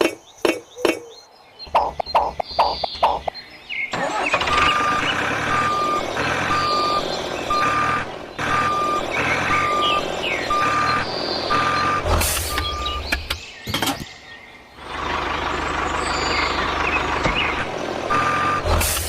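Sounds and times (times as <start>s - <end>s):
reversing alarm beeping: 4.4s - 13.1s, 18.1s - 18.8s.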